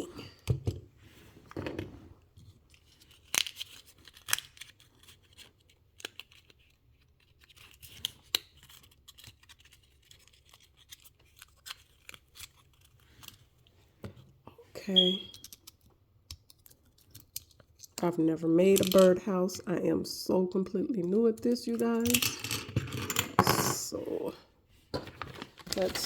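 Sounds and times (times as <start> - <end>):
packaging rustling: 24.9 - 26.0.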